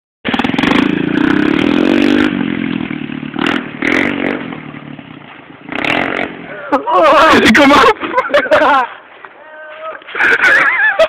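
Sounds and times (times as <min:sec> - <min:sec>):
pit bike engine revving: 0:00.3 - 0:07.5.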